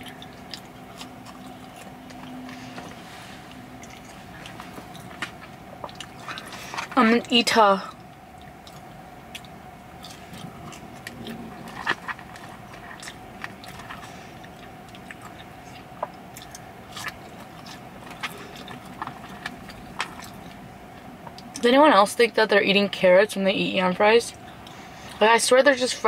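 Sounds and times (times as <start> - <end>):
person chewing with mouth clicks: 0.0 - 7.0, 7.9 - 21.6.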